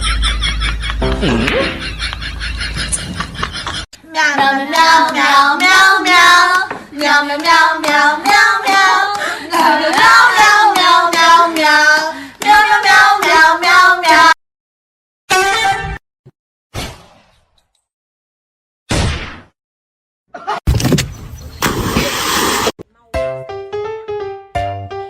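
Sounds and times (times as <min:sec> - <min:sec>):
high voice singing short notes: 0:01.0 - 0:01.8.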